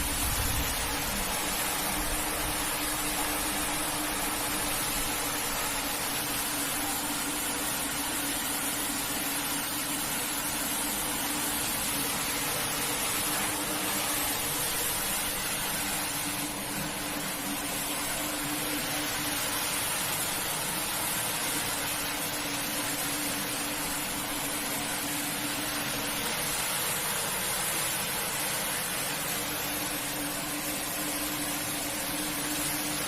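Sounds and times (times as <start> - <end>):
pressure washer motor hum: 0.0 - 33.0.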